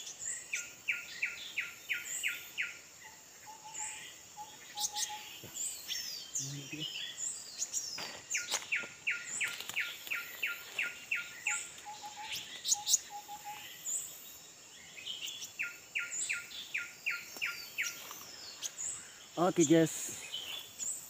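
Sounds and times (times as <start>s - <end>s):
higher bird chirps: 0.0s - 14.2s, 14.8s - 21.0s.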